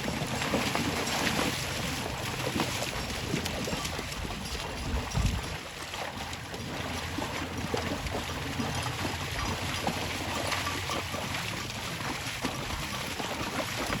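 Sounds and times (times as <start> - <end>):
boat engine hum: 0.0 - 14.0
water splashing and lapping: 0.0 - 14.0.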